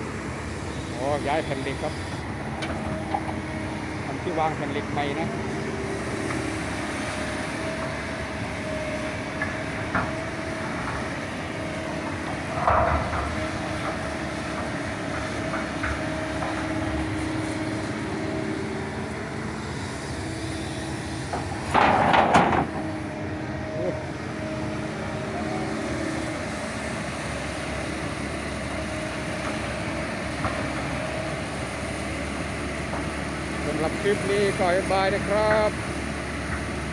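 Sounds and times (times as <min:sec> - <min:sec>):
excavator engine running: 0:00.0 - 0:36.9.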